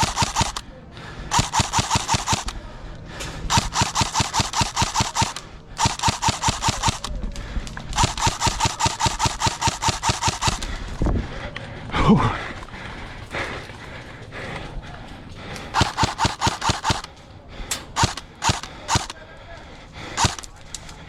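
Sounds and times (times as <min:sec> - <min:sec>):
airsoft rifle firing full auto: 0:00.0 - 0:00.6, 0:01.3 - 0:02.6, 0:03.5 - 0:07.1, 0:08.0 - 0:10.7, 0:15.8 - 0:17.1, 0:18.0 - 0:19.2, 0:20.2 - 0:20.5.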